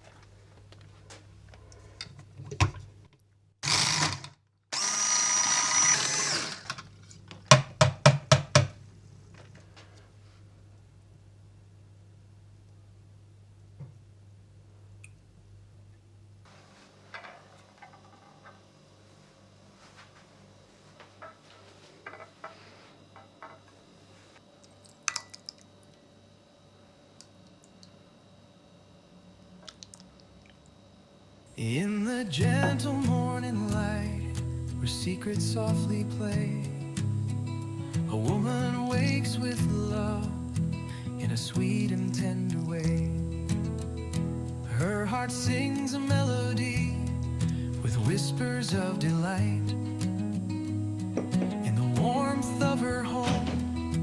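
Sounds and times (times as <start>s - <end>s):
small electric motor whirring: 3.6s - 6.8s
faint steady hum: 8.6s - 54.0s.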